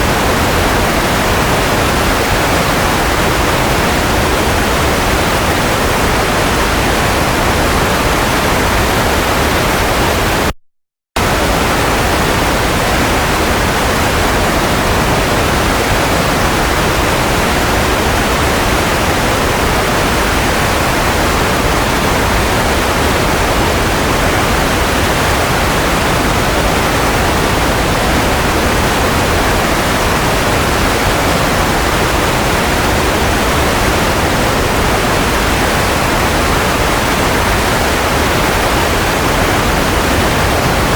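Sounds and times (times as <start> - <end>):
steady white noise hiss: 11.2 - 40.9.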